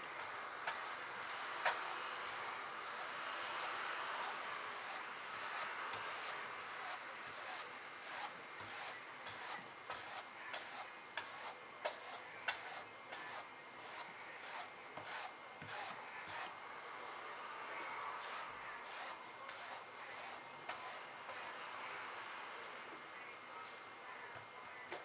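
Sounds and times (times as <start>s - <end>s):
paintbrush strokes on surface: 0.2s - 16.5s, 18.2s - 21.6s
brush tapping: 4.8s - 16.5s.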